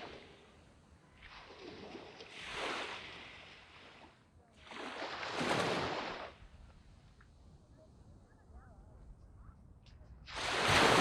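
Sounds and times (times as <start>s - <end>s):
waves washing onto sandy beach: 10.3s - 11.0s.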